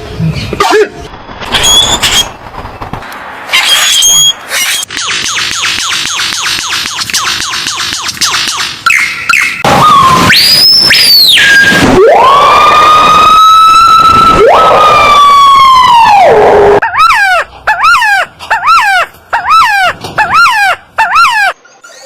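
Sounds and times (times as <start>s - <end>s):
bird mimicking a siren: 16.8s - 21.6s.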